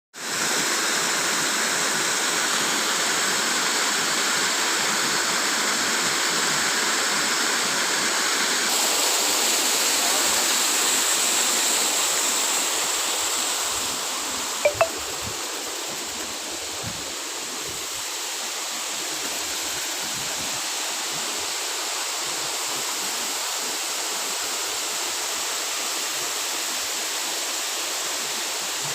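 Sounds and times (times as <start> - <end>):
waterfall rushing: 8.7 - 28.9.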